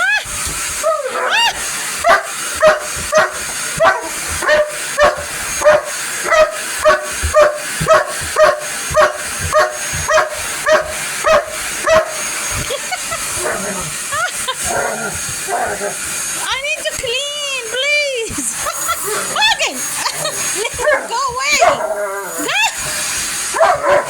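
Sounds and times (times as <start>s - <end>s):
dog barking: 2.0s - 12.3s, 20.8s - 22.0s, 23.5s - 24.0s.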